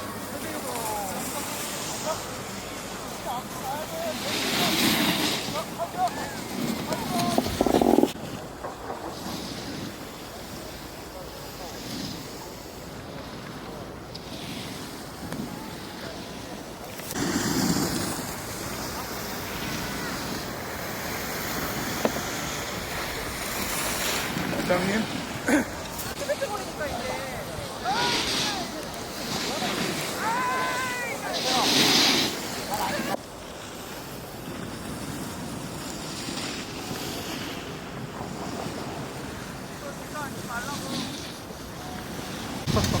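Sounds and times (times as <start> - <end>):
skis sliding over snow: 0.0 - 43.0
wind on microphone: 6.2 - 10.6.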